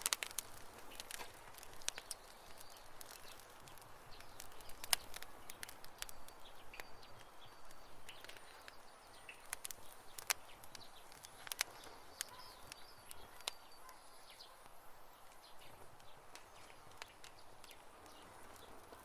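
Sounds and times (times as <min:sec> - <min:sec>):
campfire crackling and popping: 0:00.0 - 0:19.0
faint high chirps: 0:04.2 - 0:14.8.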